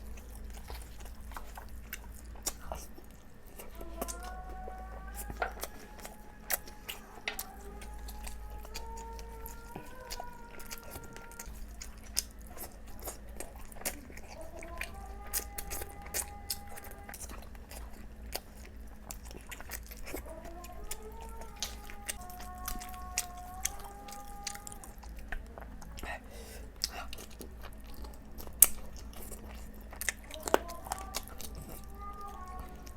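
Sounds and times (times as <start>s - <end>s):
close chewing and mouth smacking: 0.0s - 32.9s.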